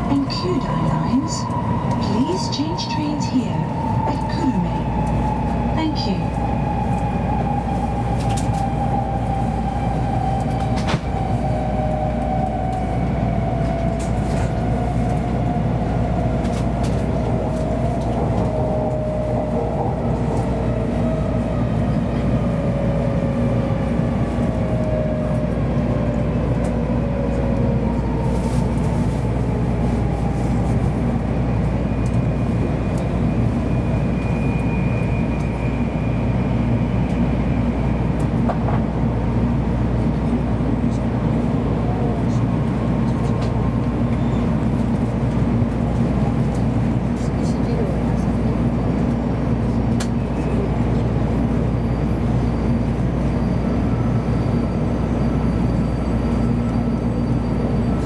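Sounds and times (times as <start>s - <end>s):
train cabin rumble: 0.0s - 35.7s.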